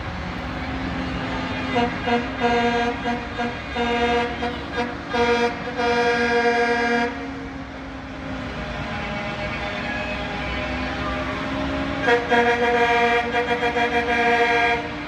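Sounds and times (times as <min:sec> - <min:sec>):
truck horns honking: 0:00.0 - 0:07.6, 0:08.2 - 0:15.0
truck engines rumbling: 0:00.0 - 0:15.0.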